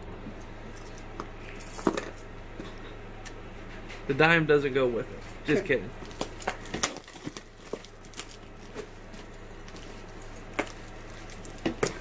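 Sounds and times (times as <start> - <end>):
packing tape crinkling: 6.0 - 12.0.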